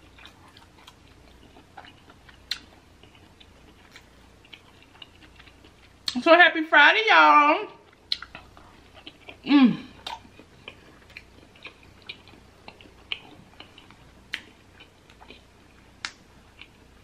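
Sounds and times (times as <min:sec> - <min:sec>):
person chewing: 0:00.0 - 0:06.2, 0:07.8 - 0:17.0
mouth clicks and lip smacks: 0:08.0 - 0:09.2.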